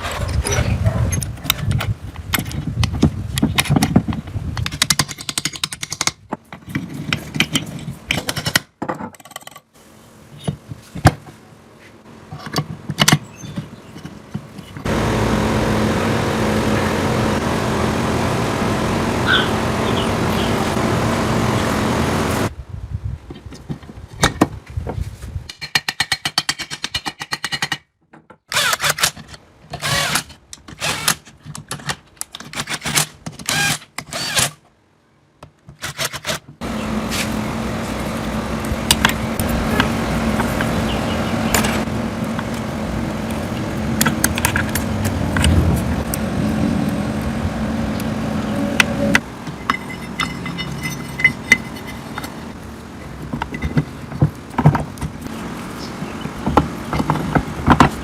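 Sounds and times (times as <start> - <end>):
motor humming: 14.9 - 22.5.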